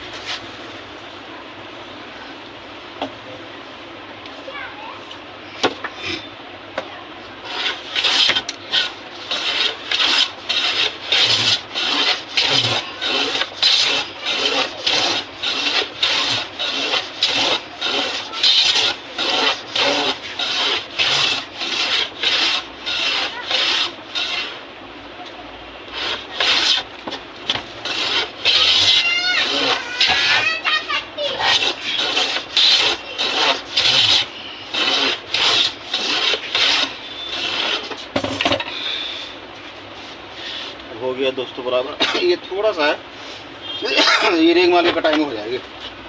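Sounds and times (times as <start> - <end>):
wooden key sanded by hand: 7.4 - 24.6, 25.9 - 38.2.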